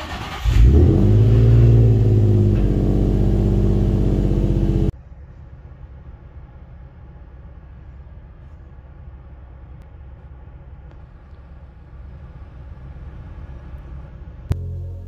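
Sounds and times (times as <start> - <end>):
car engine fast idle: 0.0 - 3.0
faint low rumble: 4.5 - 15.0.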